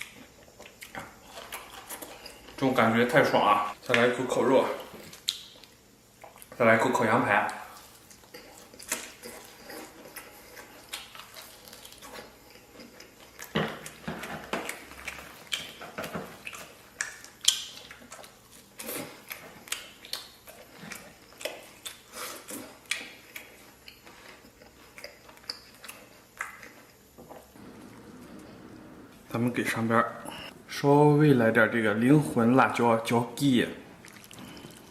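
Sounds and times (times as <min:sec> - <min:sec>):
person chewing meat: 0:00.0 - 0:02.6, 0:04.7 - 0:06.6, 0:07.5 - 0:28.5, 0:34.0 - 0:34.9.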